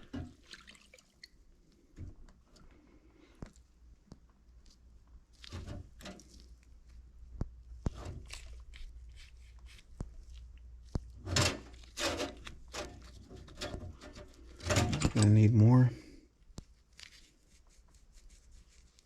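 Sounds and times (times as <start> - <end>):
rustling: 16.6 - 19.0.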